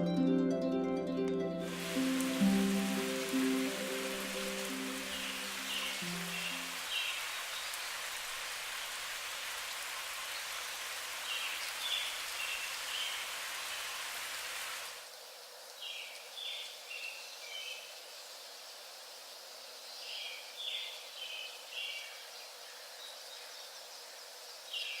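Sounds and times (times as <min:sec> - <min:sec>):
hiss of water: 0:01.6 - 0:15.2.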